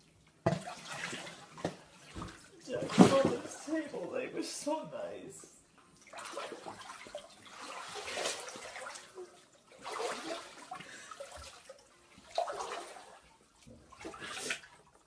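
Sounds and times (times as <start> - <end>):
water sloshing from wading: 0.5 - 4.2, 5.9 - 15.0.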